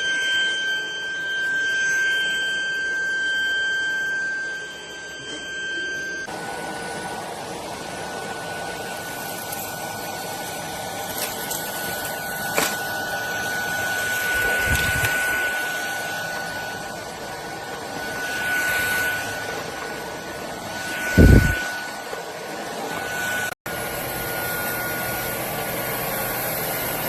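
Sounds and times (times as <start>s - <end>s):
stick vacuum whining: 0.0s - 27.0s
rushing airflow: 17.7s - 22.0s.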